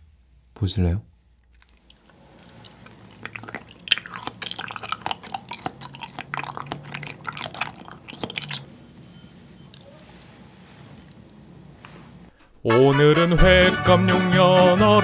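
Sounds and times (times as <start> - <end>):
mouth clicks: 1.4 - 11.2
close chewing: 1.4 - 12.3.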